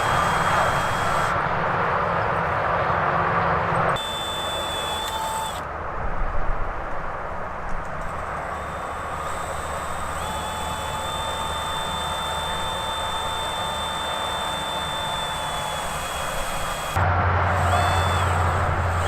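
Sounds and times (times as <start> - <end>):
engine drone: 0.0 - 19.0
low hum: 8.6 - 19.0.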